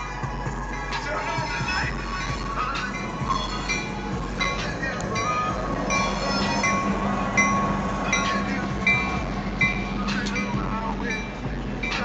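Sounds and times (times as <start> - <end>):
crossing bell ringing: 0.0 - 12.0
train engine and wheel rumble: 0.0 - 12.0.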